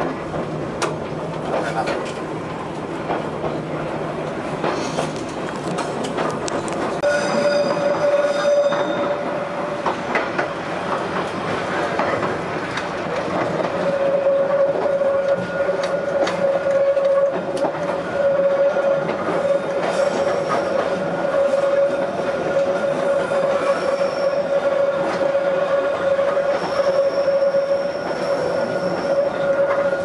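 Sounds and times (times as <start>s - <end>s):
train wheel squeal: 7.0s - 10.6s, 13.0s - 30.0s.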